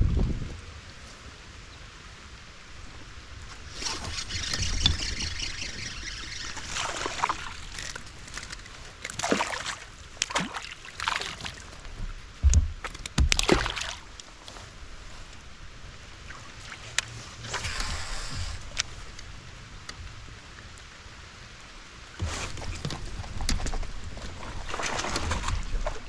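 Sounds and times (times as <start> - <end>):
water trickling and splashing: 2.3 - 21.5, 22.1 - 26.0
short splashes: 3.6 - 8.5, 9.1 - 11.6, 13.3 - 14.1, 22.2 - 26.0.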